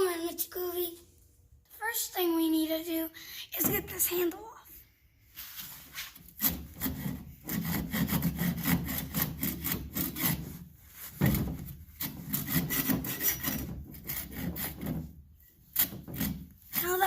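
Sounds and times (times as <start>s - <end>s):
saw cutting wood: 6.3s - 17.0s.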